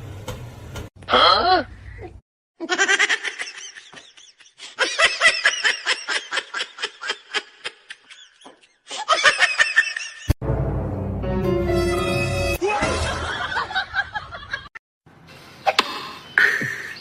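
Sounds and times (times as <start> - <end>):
person laughing: 2.0 - 10.4, 12.6 - 14.7.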